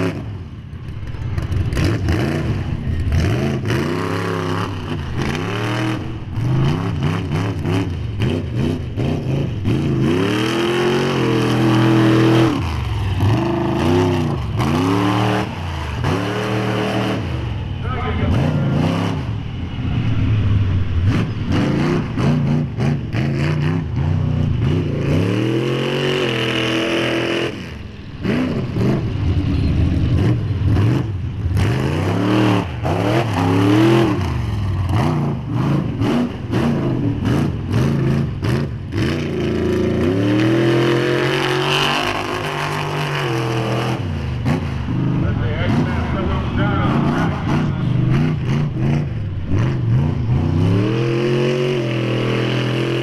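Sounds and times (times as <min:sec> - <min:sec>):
truck engine revving hard: 0:00.0 - 0:00.6, 0:01.2 - 0:53.0.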